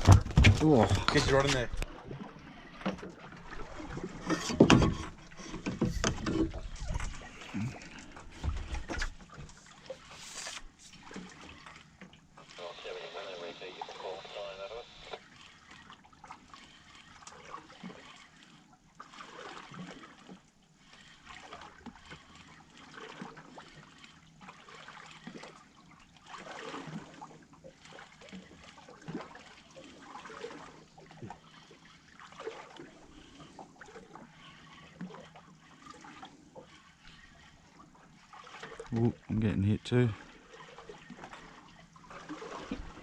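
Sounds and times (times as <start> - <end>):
water lapping against a boat hull: 0.0 - 43.0
small splashes: 6.5 - 12.8, 15.0 - 43.0.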